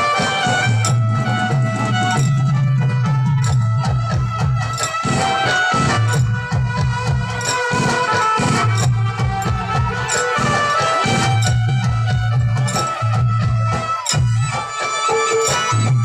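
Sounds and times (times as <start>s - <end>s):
driving drum beat: 0.0s - 16.0s.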